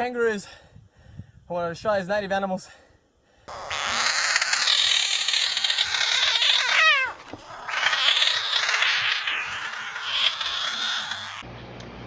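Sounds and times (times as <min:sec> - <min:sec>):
cat caterwauling: 0:03.5 - 0:11.4.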